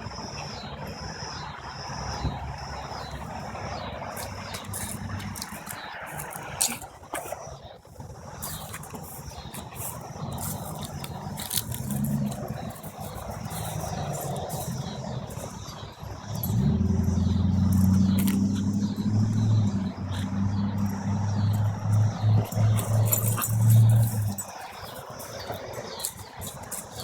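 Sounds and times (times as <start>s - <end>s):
vehicle engine running: 1.4s - 6.4s, 9.8s - 27.0s.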